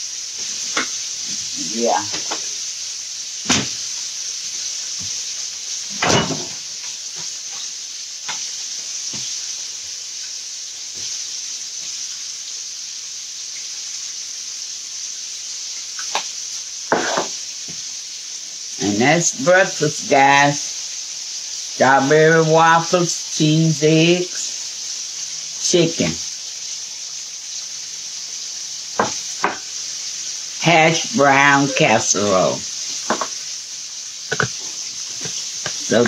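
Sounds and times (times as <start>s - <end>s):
chicken sizzling in hot oil: 0.0s - 36.0s
kitchen knocks and clicks: 6.0s - 6.6s.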